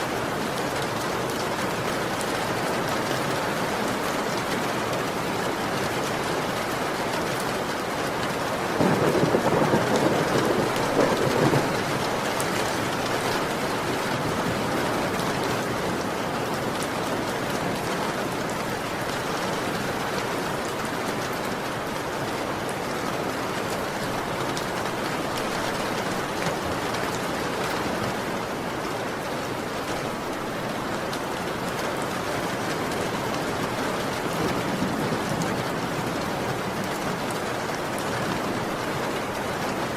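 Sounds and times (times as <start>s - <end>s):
heavy rain falling: 0.0s - 39.9s
thunder rumble: 8.8s - 16.1s, 33.5s - 37.0s.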